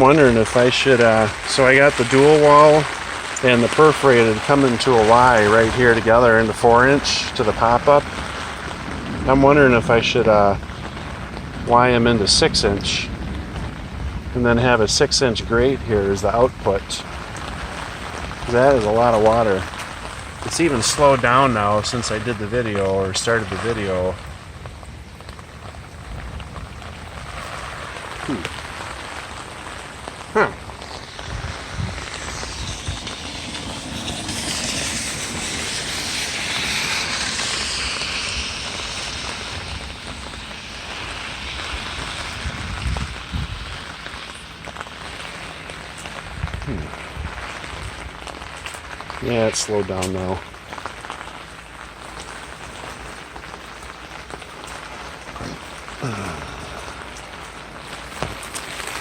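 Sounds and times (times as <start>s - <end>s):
water rushing from drain: 0.0s - 14.0s, 16.1s - 59.0s
heavy rain hissing: 0.0s - 59.0s
water welling from drain: 27.9s - 46.0s.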